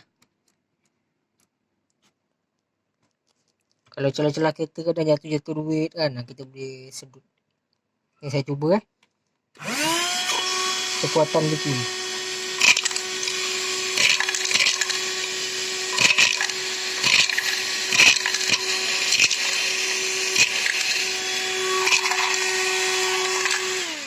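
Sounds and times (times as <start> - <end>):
handheld vacuum whining: 9.6 - 24.0.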